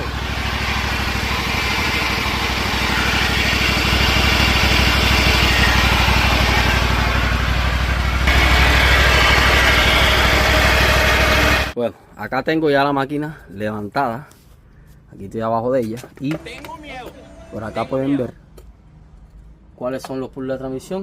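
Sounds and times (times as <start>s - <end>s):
lawn mower running: 0.0s - 11.8s
noise from underneath mower: 0.0s - 11.8s.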